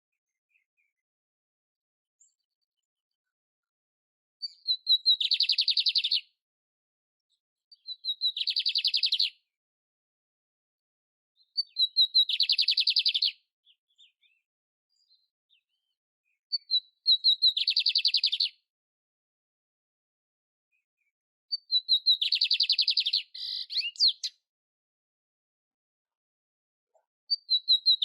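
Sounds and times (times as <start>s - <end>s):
canary singing trills: 4.4s - 6.3s, 7.8s - 9.4s, 11.4s - 14.4s, 15.0s - 18.6s, 21.5s - 24.4s, 27.3s - 28.0s.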